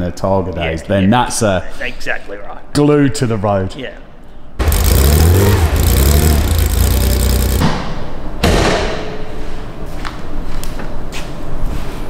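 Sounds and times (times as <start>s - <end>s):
car engine rumbling and revving: 4.6s - 7.8s.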